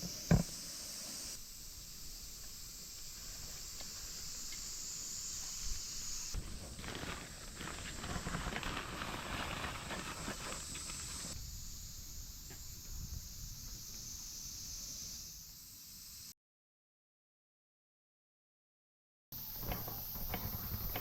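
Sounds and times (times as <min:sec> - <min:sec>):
steady high hiss: 0:00.0 - 0:16.4, 0:19.4 - 0:21.0
rustling: 0:05.3 - 0:11.4.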